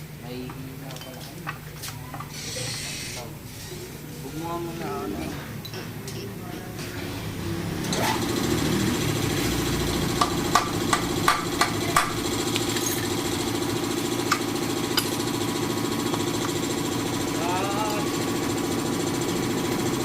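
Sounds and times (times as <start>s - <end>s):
motorcycle engine starting and idling: 7.1s - 20.0s
sharp metallic knocks: 10.2s - 12.3s.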